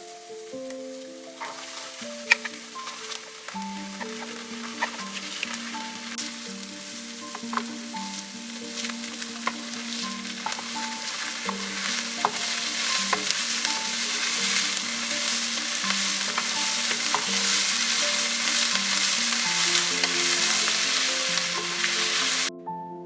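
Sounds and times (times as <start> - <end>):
food sizzling in a pan: 0.0 - 22.5
soft background music: 0.0 - 23.0
utensil clicking against pan: 1.4 - 6.2.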